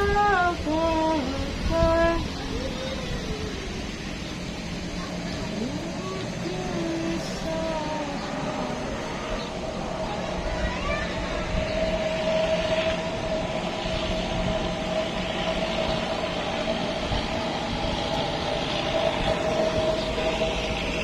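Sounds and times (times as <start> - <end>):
high whine: 0.0 - 21.0
truck engine running: 0.0 - 21.0.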